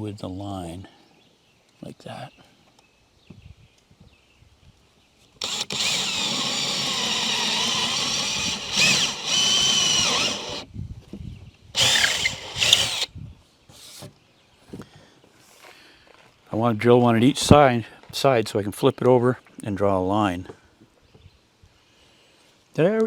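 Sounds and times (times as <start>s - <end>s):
power drill boring: 5.4s - 10.7s, 11.8s - 13.1s.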